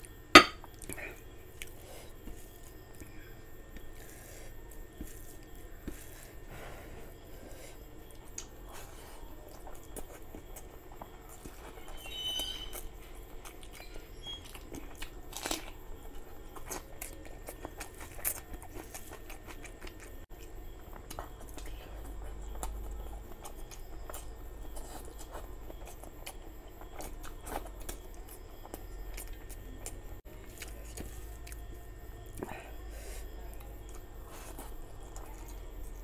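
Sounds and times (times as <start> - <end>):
chewing and mouth smacking: 7.8 - 36.0.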